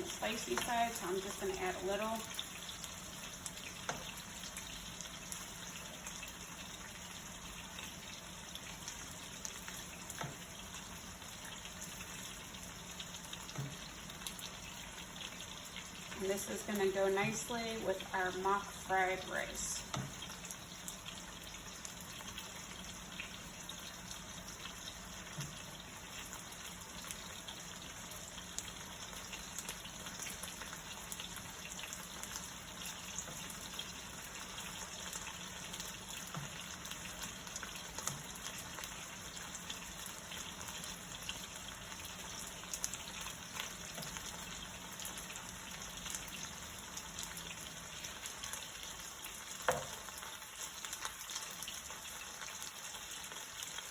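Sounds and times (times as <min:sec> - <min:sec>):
chicken sizzling in hot oil: 0:00.0 - 0:53.9.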